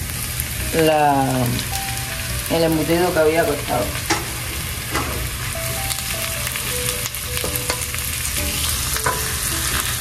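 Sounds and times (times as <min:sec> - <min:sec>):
food sizzling in oil in a pan: 0:00.0 - 0:10.0
spoon stirring and knocking on pan: 0:07.4 - 0:09.4.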